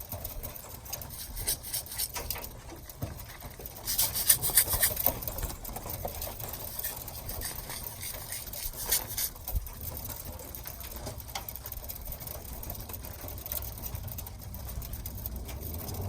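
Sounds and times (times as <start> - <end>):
pigeons rustling and scraping: 0.6 - 10.1.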